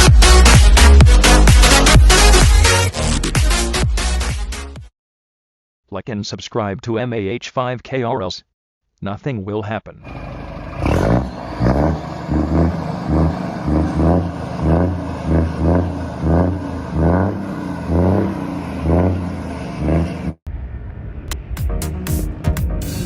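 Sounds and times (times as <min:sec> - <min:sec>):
diesel truck engine revving: 0:10.0 - 0:20.5.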